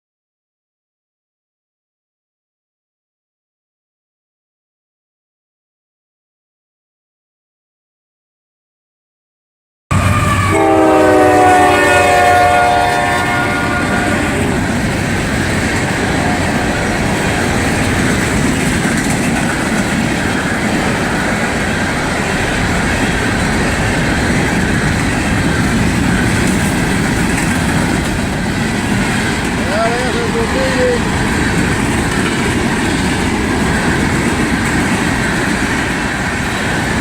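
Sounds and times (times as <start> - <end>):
locomotive air horn: 9.9 - 14.5
train running on rails: 9.9 - 37.0.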